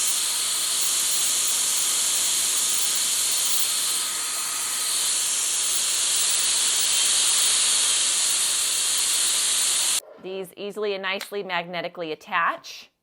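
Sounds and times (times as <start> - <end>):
hair dryer blowing air: 0.0 - 10.0.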